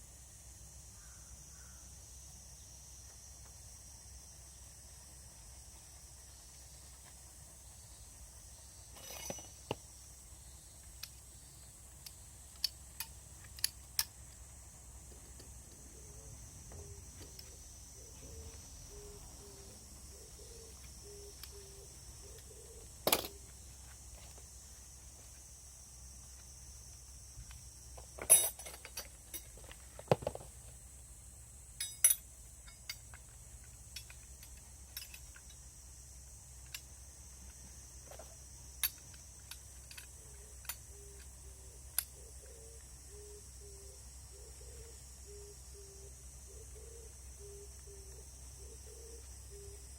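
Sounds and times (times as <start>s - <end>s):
metal tools clinking: 8.9s - 9.6s, 28.2s - 29.6s, 31.8s - 33.2s, 33.9s - 35.5s.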